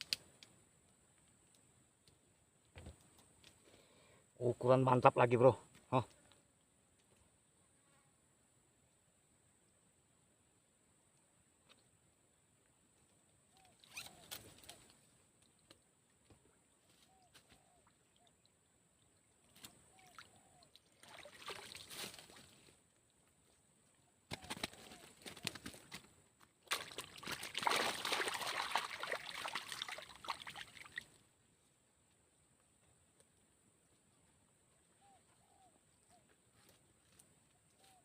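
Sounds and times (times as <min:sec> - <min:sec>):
water splashing and sloshing: 0:19.4 - 0:22.7, 0:25.1 - 0:31.2.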